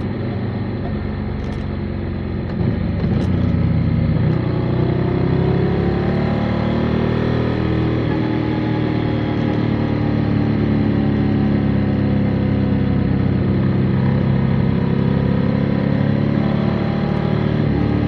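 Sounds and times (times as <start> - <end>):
motorcycle engine running: 0.0 - 6.2
road and wind noise: 0.0 - 18.0.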